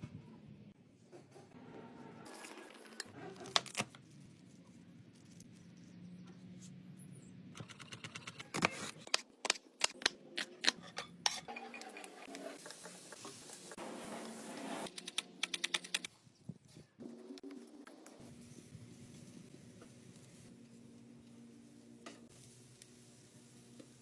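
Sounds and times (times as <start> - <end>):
utensils clinking against dishes: 10.8 - 12.4.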